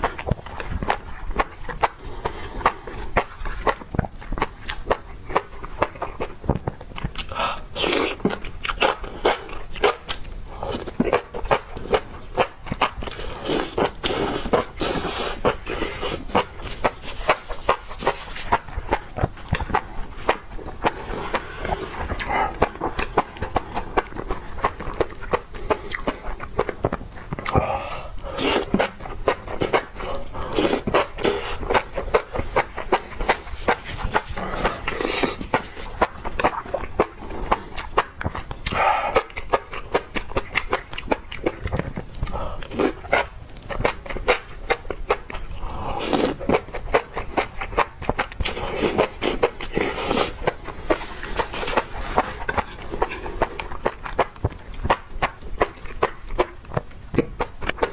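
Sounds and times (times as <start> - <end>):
wet mouth clicks chewing: 0.0 - 57.9
breathy sounds: 7.2 - 8.3, 13.1 - 25.0, 27.4 - 29.0, 38.6 - 39.6, 42.1 - 43.0, 45.5 - 46.5.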